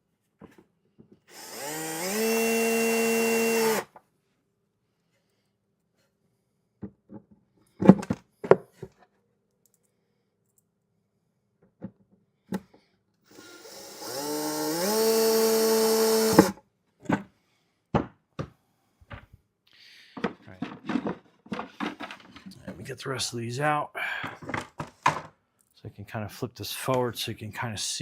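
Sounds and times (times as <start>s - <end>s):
screw gun motor driving screw: 1.3s - 3.9s, 13.3s - 16.6s
knocks and clicks of handling: 20.1s - 22.8s, 24.2s - 25.4s.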